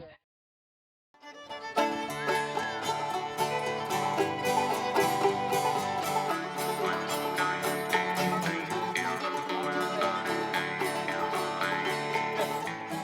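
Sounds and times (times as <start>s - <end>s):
fiddle: 1.2s - 13.0s
string band music: 1.3s - 13.0s
banjo picking: 1.4s - 13.0s.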